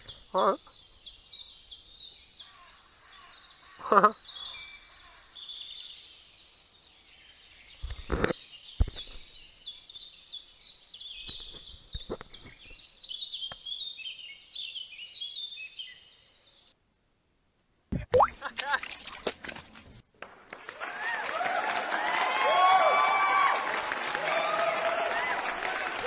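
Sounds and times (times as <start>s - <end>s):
small birds singing: 0.0s - 16.8s.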